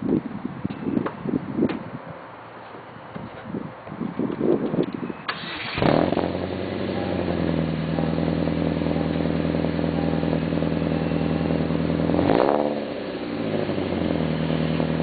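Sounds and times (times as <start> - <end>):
car engine starting and idling: 5.3 - 15.0.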